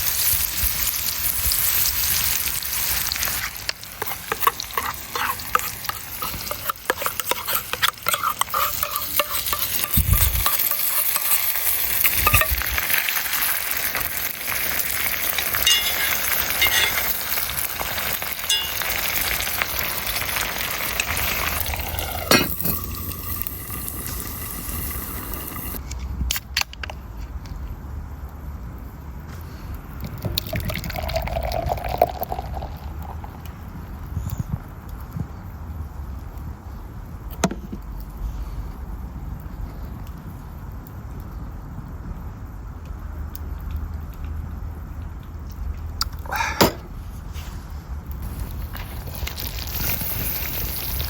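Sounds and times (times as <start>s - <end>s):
food sizzling in frying pan: 0.0s - 25.8s, 48.2s - 51.0s
utensil scraping in pan: 0.0s - 25.8s.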